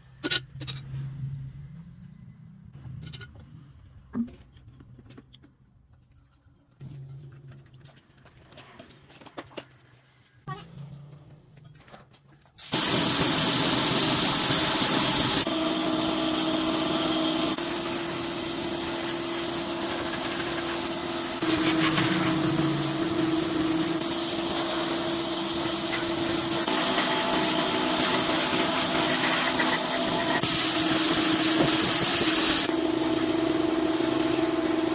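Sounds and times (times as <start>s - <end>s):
power tool whining: 13.0s - 24.5s.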